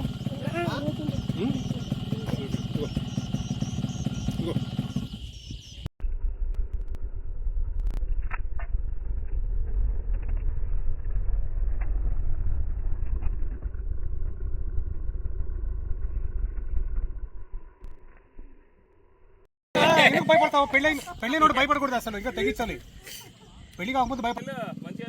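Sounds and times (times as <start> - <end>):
motorcycle rumbling: 0.0 - 25.0.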